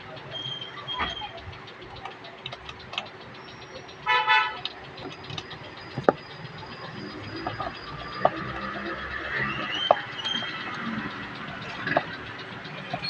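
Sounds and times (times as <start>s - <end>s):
sharp clicks: 0.0s - 13.0s
vehicle horn beeps: 4.0s - 4.7s.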